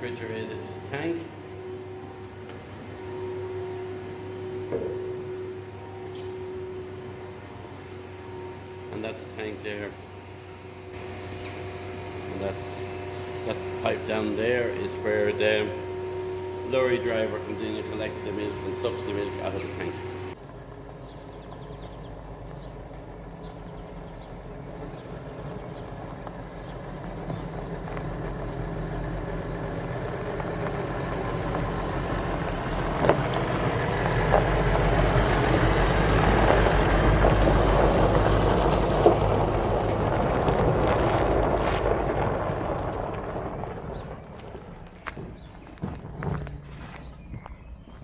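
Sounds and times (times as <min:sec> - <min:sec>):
lorry engine running: 0:00.0 - 0:48.0.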